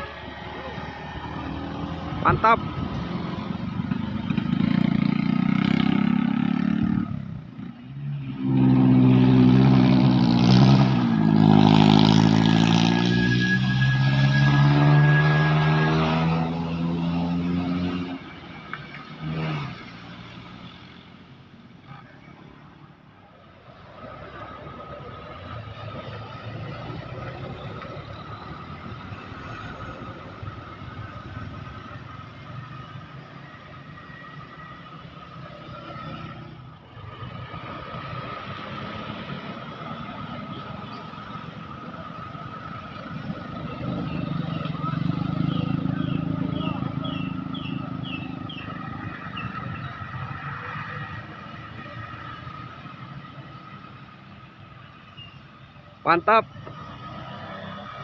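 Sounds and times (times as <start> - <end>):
faint road traffic: 0.0 - 58.0
heavy vehicle engine passing: 8.2 - 20.6.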